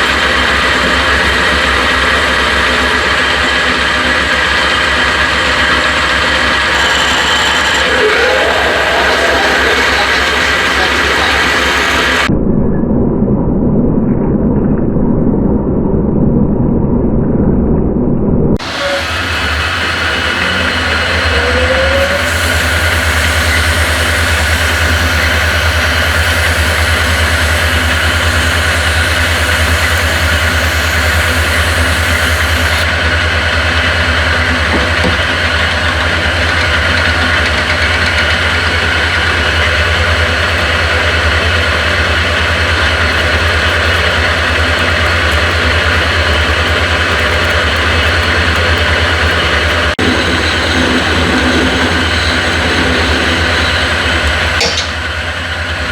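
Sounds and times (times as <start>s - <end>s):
machine humming: 0.0s - 12.3s, 18.6s - 55.9s
steady higher tones: 6.2s - 12.3s
high hiss: 18.6s - 32.8s.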